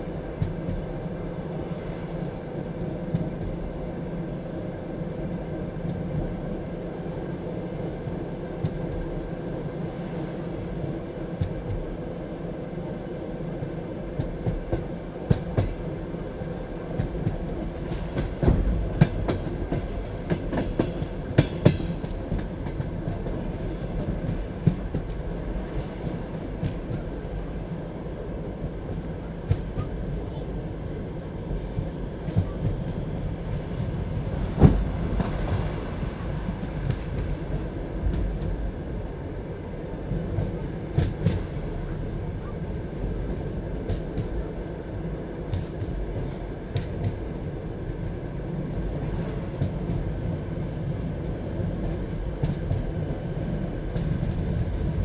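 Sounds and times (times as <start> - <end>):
railway carriage rumbling: 0.0 - 55.0.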